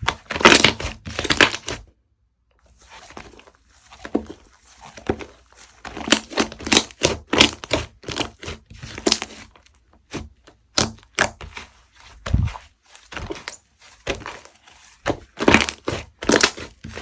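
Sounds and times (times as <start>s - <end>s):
slime crackling and popping: 0.2s - 1.7s, 5.8s - 9.5s, 15.2s - 17.0s.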